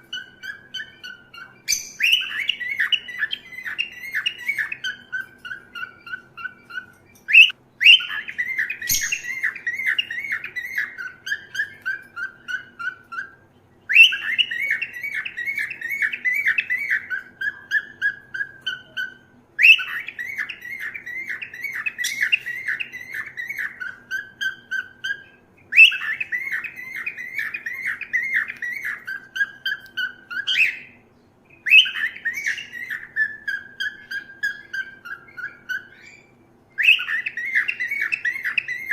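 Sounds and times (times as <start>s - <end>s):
cockatiel chirping: 0.0s - 38.9s.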